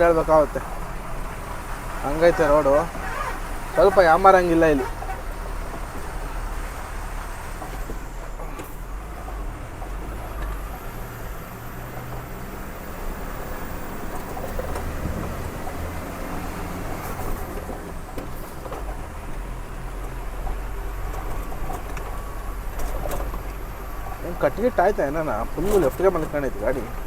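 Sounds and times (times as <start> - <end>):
truck engine running: 0.0 - 27.0.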